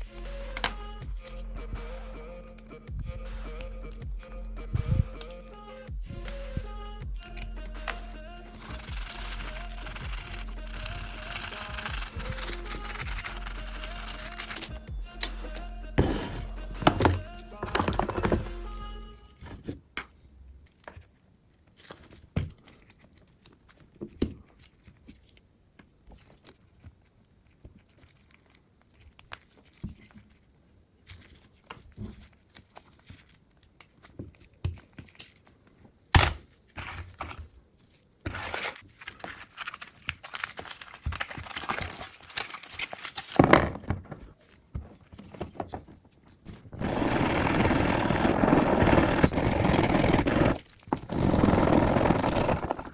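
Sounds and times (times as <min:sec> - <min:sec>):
short scraping and rustling: 0:16.0 - 0:19.8, 0:45.0 - 0:52.9.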